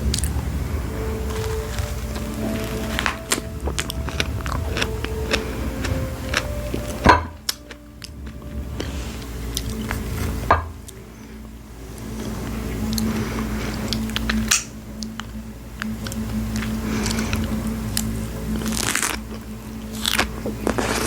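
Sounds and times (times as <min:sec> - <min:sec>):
chewing and squishing mouth sounds: 0:00.0 - 0:11.0
steady low hum: 0:00.0 - 0:21.0.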